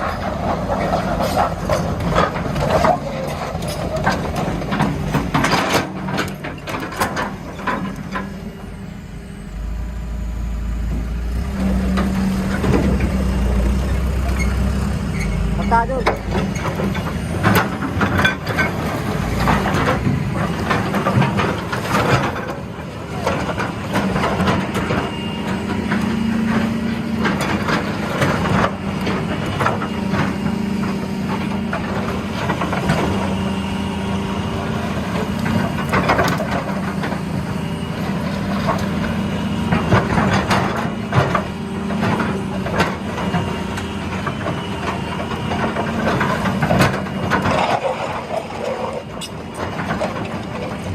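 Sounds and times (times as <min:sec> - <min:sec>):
diesel engines droning: 0:00.0 - 0:50.9
knocks and clanks: 0:00.1 - 0:08.3, 0:11.8 - 0:22.6.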